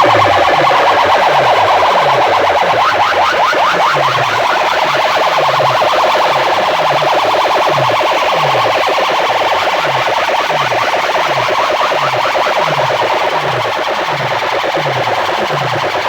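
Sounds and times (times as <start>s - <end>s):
falling bass sweep: 0.0s - 5.1s
electronic siren-like effect: 0.0s - 16.0s.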